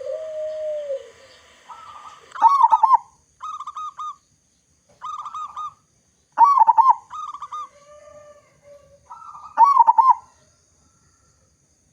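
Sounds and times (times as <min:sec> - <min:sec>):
dove cooing: 0:00.0 - 0:04.1, 0:05.0 - 0:05.8, 0:06.4 - 0:10.3.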